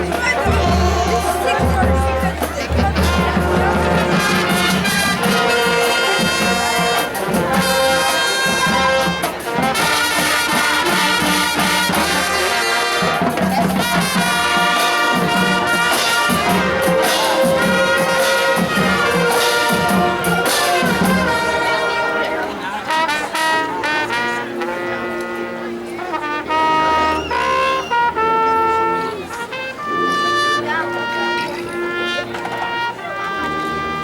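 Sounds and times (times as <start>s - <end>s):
percussion hits: 0.0s - 23.5s
marching band brass music: 0.0s - 34.0s.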